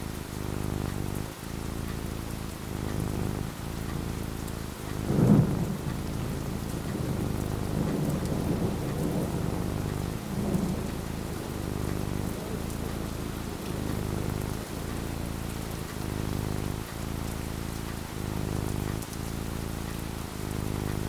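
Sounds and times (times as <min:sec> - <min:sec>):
steady rain falling: 0:00.0 - 0:21.0
thunder rumbling: 0:04.8 - 0:16.8.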